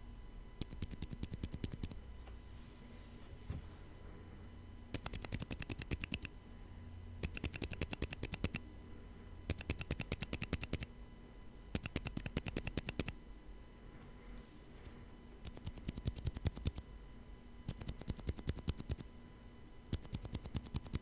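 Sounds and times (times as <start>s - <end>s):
soft keyboard keystrokes: 4.9s - 6.3s, 7.2s - 8.6s, 9.5s - 10.9s, 11.8s - 13.2s, 19.9s - 21.0s.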